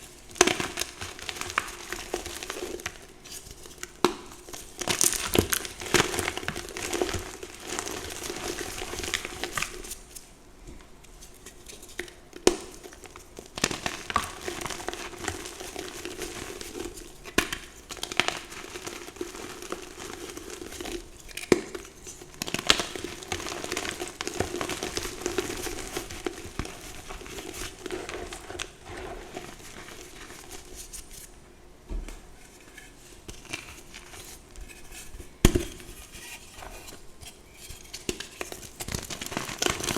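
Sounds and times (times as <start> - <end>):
chalk being crushed by hand: 0.0 - 10.3, 11.1 - 31.3.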